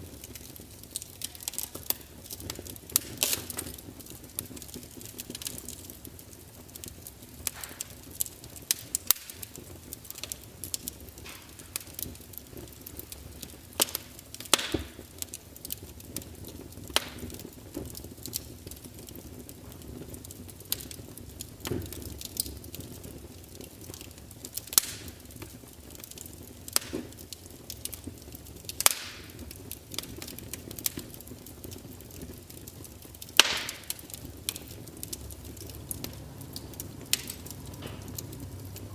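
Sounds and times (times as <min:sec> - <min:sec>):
low steady hiss and rumble: 0:00.0 - 0:38.9
wood fire crackling and popping: 0:00.0 - 0:38.9.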